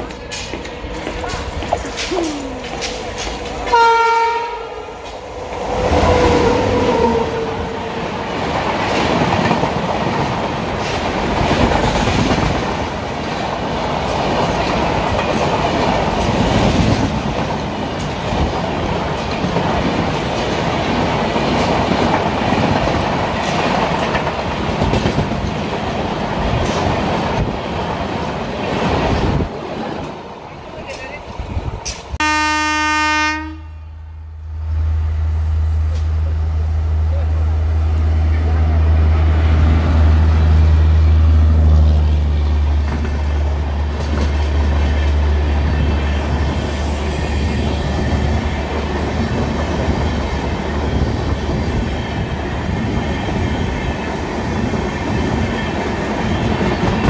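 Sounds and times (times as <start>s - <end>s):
clickety-clack of wheels: 0.0s - 3.8s, 8.6s - 28.0s, 42.7s - 46.1s, 47.1s - 57.0s
train coaches rumbling past: 0.0s - 57.0s
locomotive horn: 3.7s - 5.0s, 32.2s - 34.0s.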